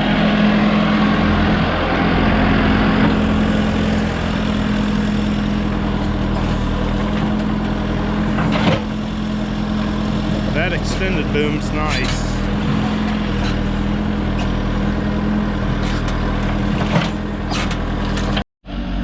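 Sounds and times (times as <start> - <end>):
backhoe engine running: 0.0 - 19.0.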